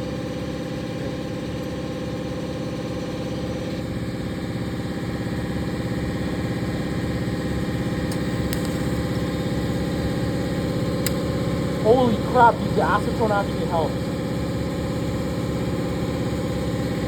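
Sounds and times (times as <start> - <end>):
welding machine buzzing: 6.9 - 14.7.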